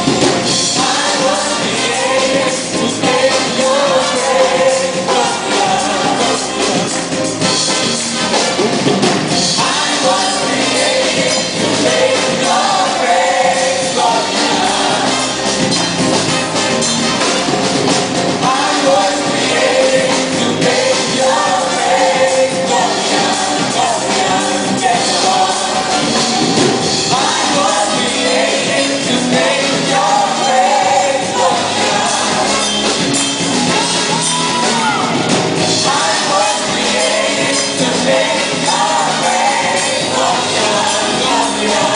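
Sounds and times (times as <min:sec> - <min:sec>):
band with drum kit: 0:00.0 - 0:41.9
voices singing: 0:00.0 - 0:41.9.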